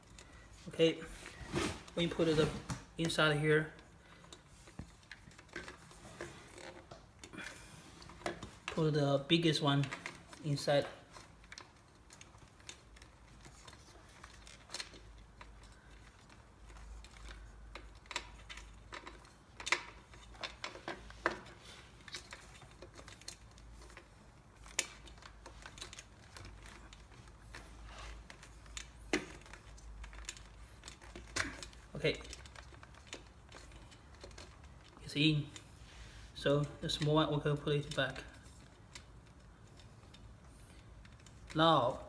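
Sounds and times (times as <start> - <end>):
cable connectors clicking: 9.5 - 35.8.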